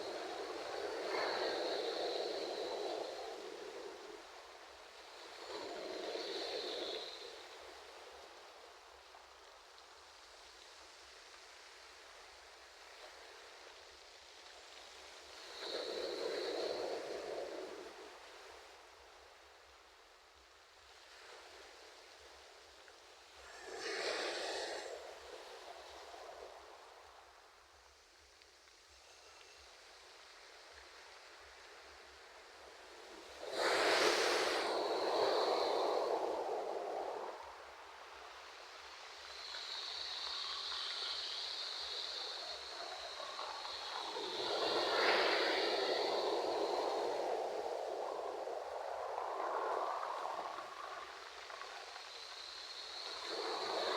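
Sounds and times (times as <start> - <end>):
ocean surf: 0.0 - 8.4, 23.4 - 27.3, 31.3 - 53.9
soft wave wash: 0.0 - 53.9.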